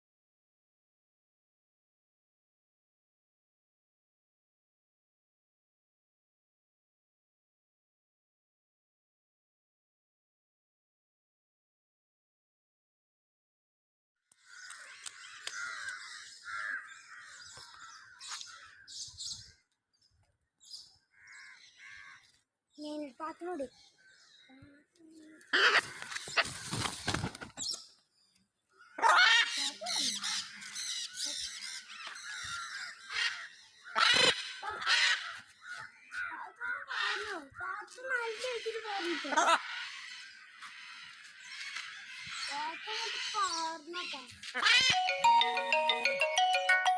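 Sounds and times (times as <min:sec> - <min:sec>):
parrots squawking: 0:25.4 - 0:26.7, 0:28.8 - 0:37.4, 0:38.4 - 0:43.6, 0:44.5 - 0:45.1.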